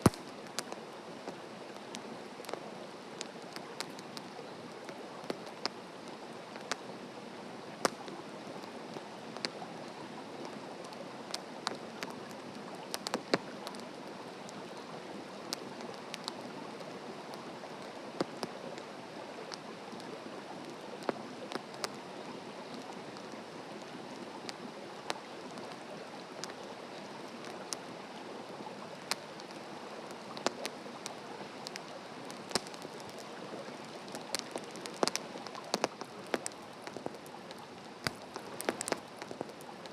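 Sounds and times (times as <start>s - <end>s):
firewood crackles and pops: 0.0s - 7.0s, 7.6s - 39.9s
wood fire hissing: 28.9s - 39.9s.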